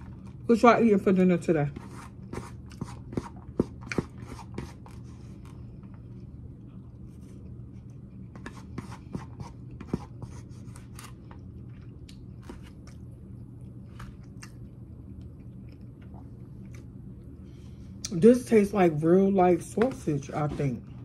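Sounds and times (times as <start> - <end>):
steady low hum: 0.0 - 21.0
person chewing food: 2.1 - 17.3.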